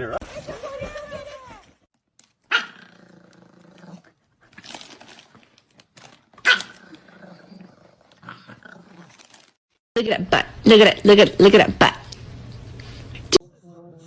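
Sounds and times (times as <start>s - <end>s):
dog barking: 2.5s - 2.8s.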